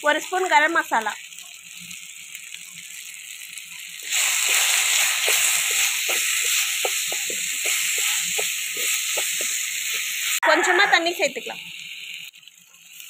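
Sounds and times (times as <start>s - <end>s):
food sizzling in hot oil: 0.0s - 13.0s
wooden spatula scraping pot: 4.0s - 10.1s.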